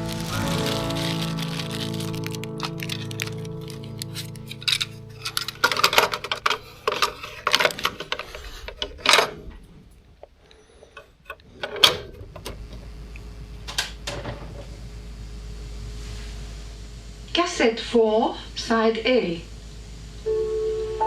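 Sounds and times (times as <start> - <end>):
cassette player humming: 0.0 - 21.0
faint tape hiss: 0.0 - 21.0
cassette tape plastic clacks: 0.2 - 9.2.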